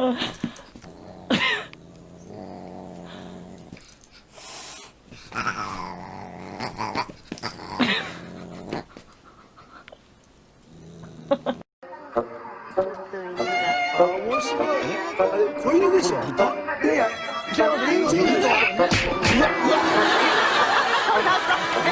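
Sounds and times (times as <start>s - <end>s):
dog growling: 0.2s - 4.3s, 5.1s - 9.2s, 10.6s - 11.6s.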